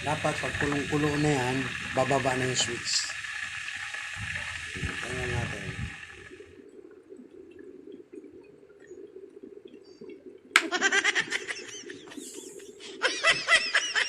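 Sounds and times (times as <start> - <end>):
kettle boiling rumble: 0.0 - 6.5
person laughing: 10.6 - 14.0.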